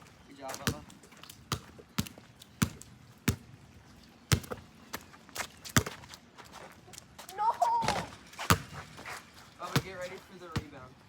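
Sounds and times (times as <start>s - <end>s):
basketball bouncing on wet court: 0.5s - 3.5s, 4.3s - 4.6s, 7.8s - 8.8s, 9.7s - 10.8s.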